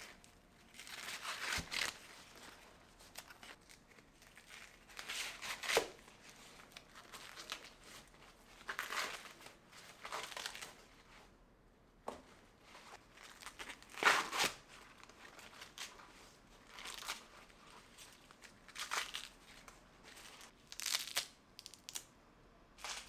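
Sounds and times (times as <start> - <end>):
corn husks crinkling and tearing: 13.2 - 22.1, 22.8 - 23.0.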